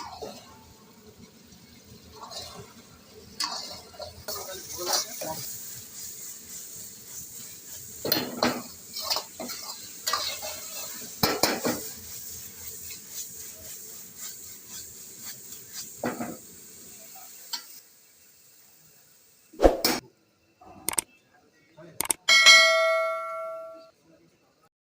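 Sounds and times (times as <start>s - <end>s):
metal spoon scraping a pan: 0.0s - 0.7s, 1.8s - 16.4s
chicken sizzling in hot oil: 0.0s - 19.6s.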